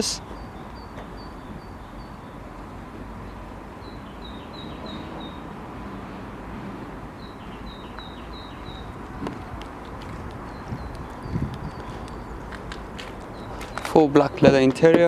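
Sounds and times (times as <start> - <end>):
small bird chirping: 7.2 - 9.2, 10.1 - 14.5.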